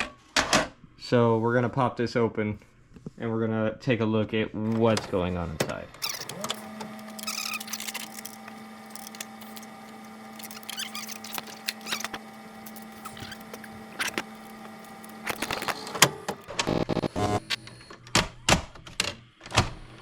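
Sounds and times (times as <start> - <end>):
plastic and metal case handled: 6.0 - 16.5
screws being worked loose: 6.0 - 16.5.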